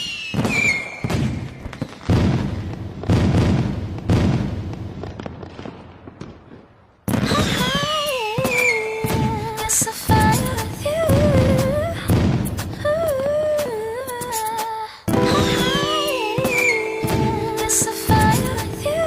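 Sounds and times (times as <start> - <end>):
falling firework whistles: 0.0 - 2.4, 8.4 - 9.3
wavering melodic tone: 15.1 - 19.0.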